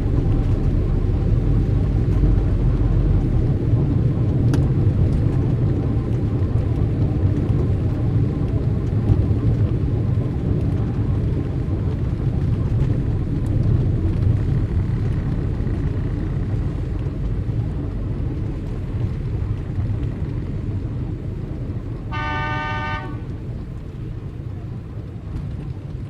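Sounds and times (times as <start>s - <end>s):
street traffic rumble: 0.0s - 26.0s
car horn: 22.1s - 23.3s.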